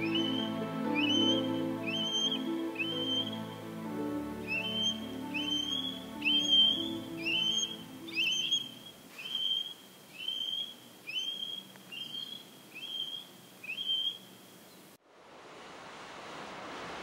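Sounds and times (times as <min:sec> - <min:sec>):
bird whistling call: 0:00.0 - 0:03.5, 0:04.4 - 0:14.2
low music notes: 0:00.0 - 0:08.8
steady rushing noise: 0:15.0 - 0:17.0.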